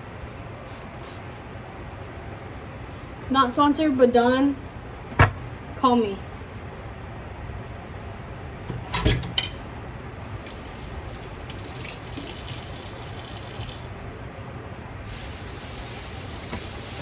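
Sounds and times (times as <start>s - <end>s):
faucet running into sink: 10.4s - 13.9s.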